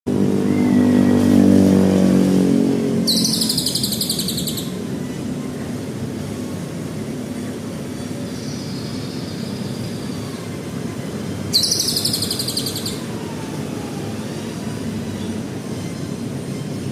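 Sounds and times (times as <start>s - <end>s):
steady background noise: 0.1s - 16.9s
bird high trill: 3.0s - 4.8s, 11.5s - 13.1s.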